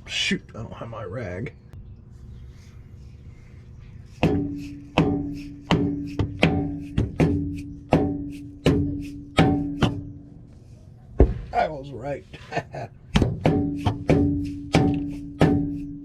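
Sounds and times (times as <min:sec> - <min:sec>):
hammer hitting metal: 0:04.2 - 0:10.0, 0:13.2 - 0:15.8.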